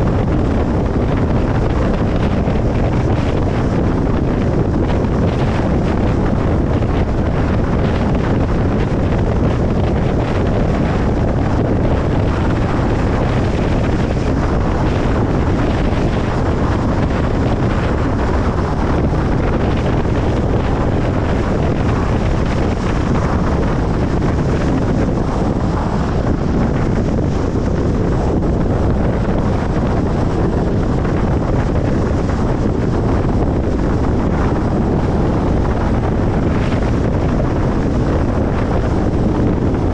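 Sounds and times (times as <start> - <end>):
car road noise rumble: 0.0 - 39.9.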